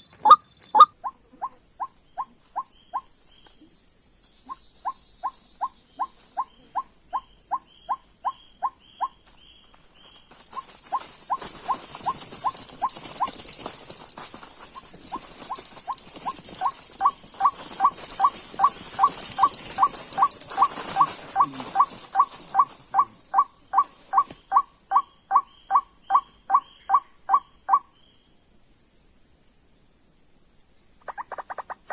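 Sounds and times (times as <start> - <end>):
bird calling repeated notes: 14.8 - 27.8
high steady hiss: 28.1 - 31.0.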